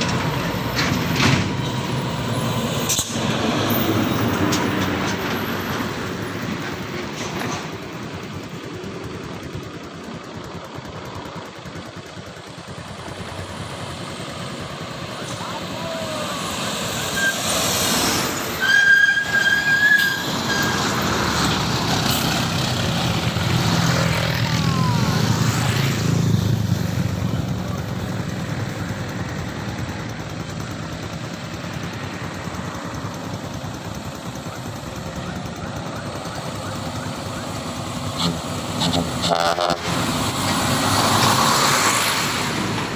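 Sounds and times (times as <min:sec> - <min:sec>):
heavy vehicle engine passing: 0:00.0 - 0:42.9
vehicle horn: 0:38.2 - 0:40.0.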